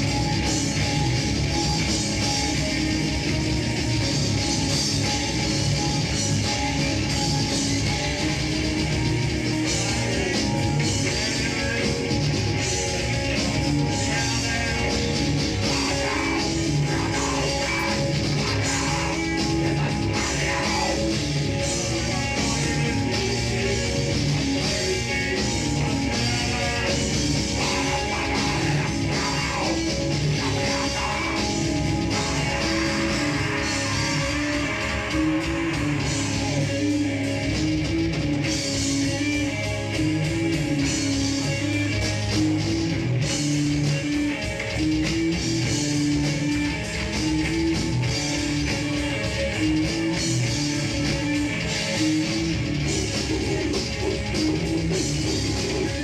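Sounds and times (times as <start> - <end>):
electric guitars: 0.0 - 56.0
fast drum kit beat: 0.0 - 56.0.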